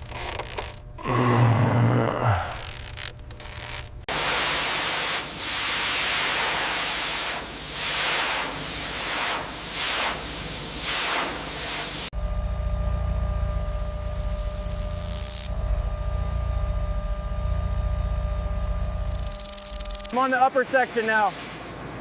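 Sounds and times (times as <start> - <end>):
loud hissing spray: 4.1 - 12.1.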